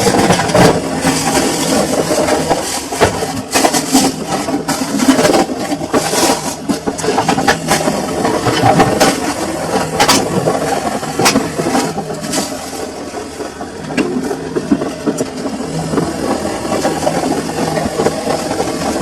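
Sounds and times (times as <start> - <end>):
washing machine running: 0.0 - 19.0.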